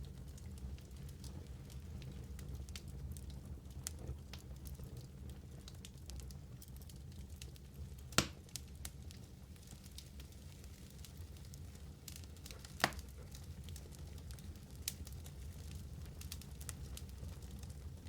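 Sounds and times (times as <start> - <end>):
wood fire crackling: 0.0 - 18.0
sharp pop of fire: 8.2 - 8.4.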